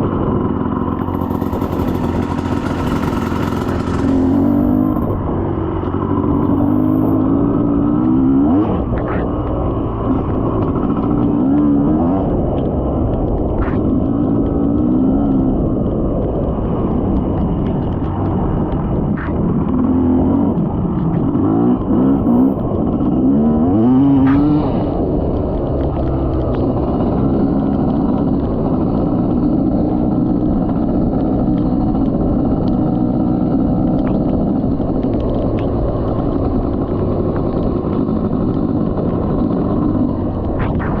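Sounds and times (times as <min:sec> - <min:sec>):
dirt bike engine revving: 0:00.0 - 0:12.6, 0:13.5 - 0:15.6, 0:19.2 - 0:25.0, 0:36.7 - 0:41.0
wind and road noise: 0:00.0 - 0:41.0.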